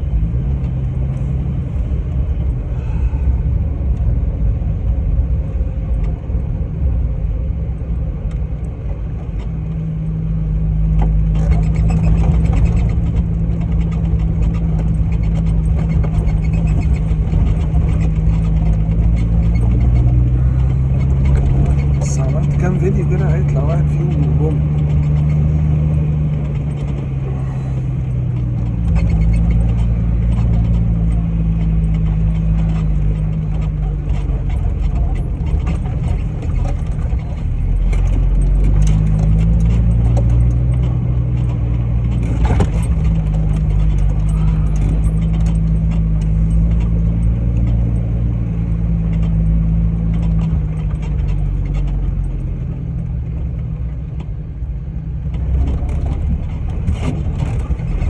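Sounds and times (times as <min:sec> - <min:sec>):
car engine revving: 0:10.3 - 0:53.5, 0:55.4 - 0:58.0
clicks and rattles: 0:11.0 - 0:53.6, 0:55.2 - 0:58.0.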